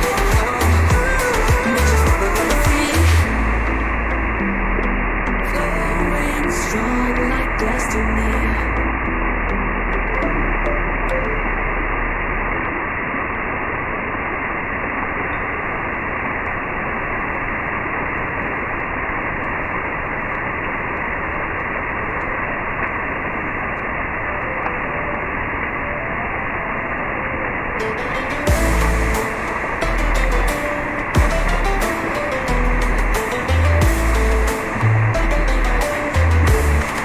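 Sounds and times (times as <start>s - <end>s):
steady rushing noise: 11.4s - 37.0s
faint musical notes: 27.7s - 37.0s.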